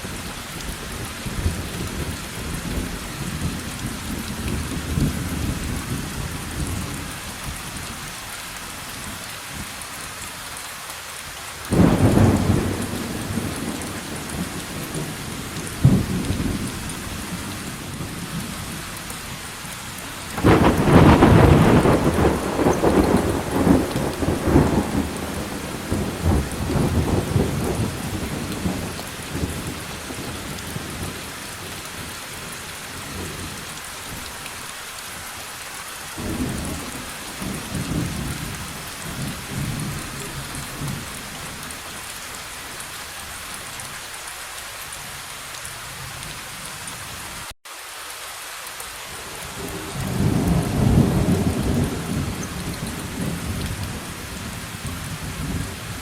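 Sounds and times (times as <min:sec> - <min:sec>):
steady rain falling: 0:00.0 - 0:56.0
rolling thunder: 0:11.7 - 0:18.6, 0:20.4 - 0:31.2, 0:49.6 - 0:56.0.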